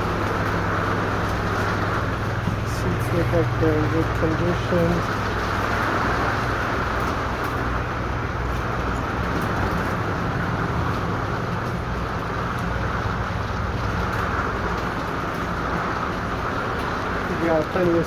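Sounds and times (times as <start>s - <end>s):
constant rushing noise: 0.0s - 18.0s
low mechanical hum: 0.0s - 18.0s.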